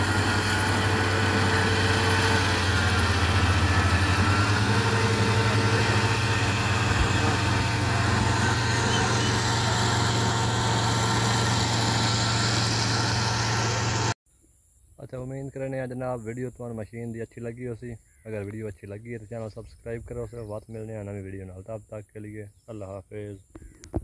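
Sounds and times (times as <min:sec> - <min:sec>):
combine harvester running: 0:00.0 - 0:14.2.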